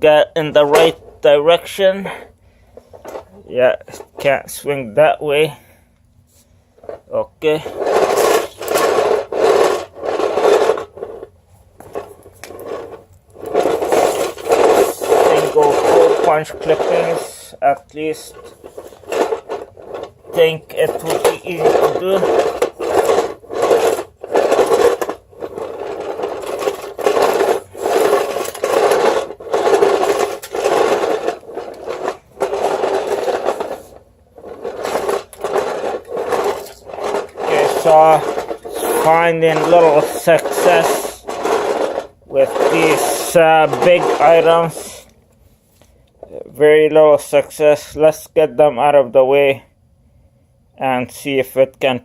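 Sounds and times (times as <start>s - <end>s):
carpet sweeper rubbing over floor: 7.5s - 11.3s, 11.9s - 45.0s.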